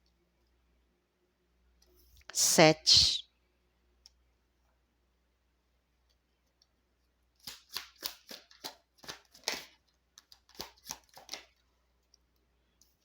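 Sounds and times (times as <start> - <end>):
cards clicking and slapping: 7.4 - 11.6.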